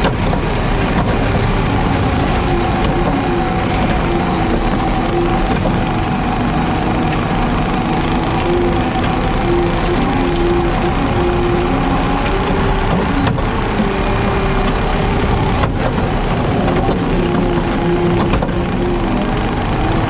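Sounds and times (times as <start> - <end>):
diesel engine running: 0.0 - 20.0
rotary brush cutter mowing: 0.0 - 20.0.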